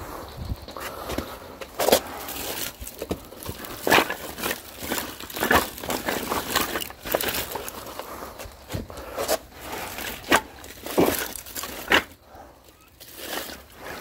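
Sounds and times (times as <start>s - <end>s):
rustling: 0.2s - 14.0s
firewood knocking and clattering: 0.7s - 9.4s, 10.0s - 12.2s.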